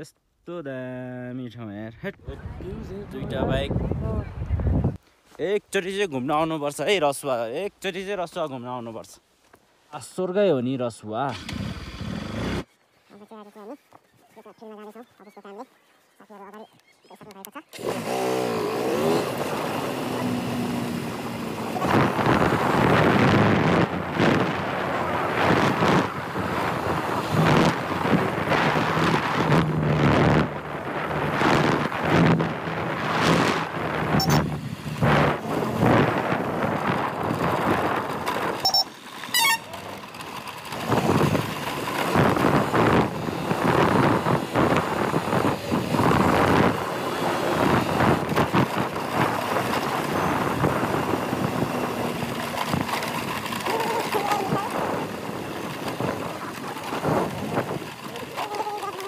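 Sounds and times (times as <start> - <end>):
wind buffeting microphone: 2.2 - 5.0, 18.8 - 38.7, 39.9 - 58.8
motorcycle riding: 11.3 - 12.7, 16.4 - 59.0.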